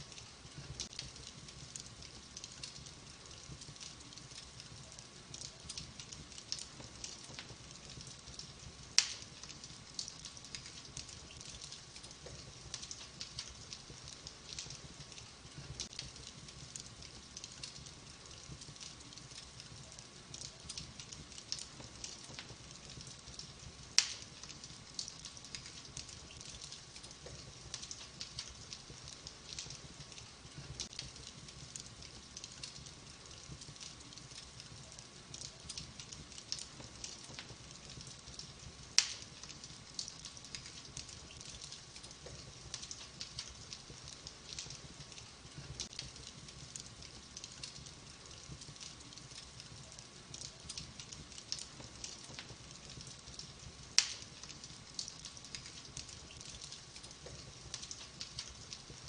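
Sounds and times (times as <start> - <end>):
wood fire crackling: 0.0 - 59.0
loud pops of fire: 2.5 - 58.7.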